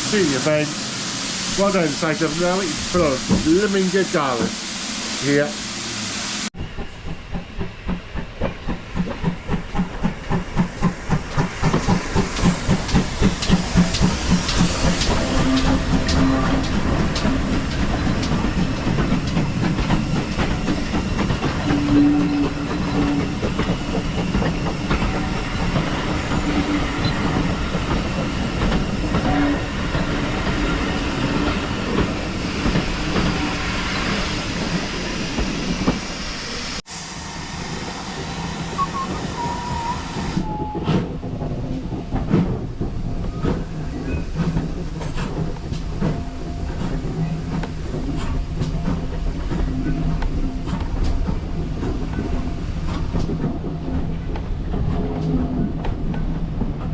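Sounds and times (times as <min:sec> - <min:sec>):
steam hiss: 0:00.0 - 0:40.8
steam locomotive exhaust beats: 0:00.0 - 0:56.9
wheels on rails: 0:06.7 - 0:36.4.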